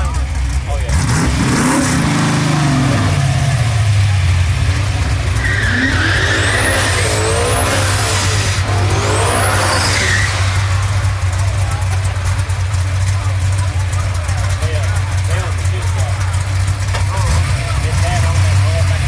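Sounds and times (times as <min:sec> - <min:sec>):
drag car engines at full throttle: 0:00.0 - 0:19.0
high squeals: 0:02.0 - 0:15.3.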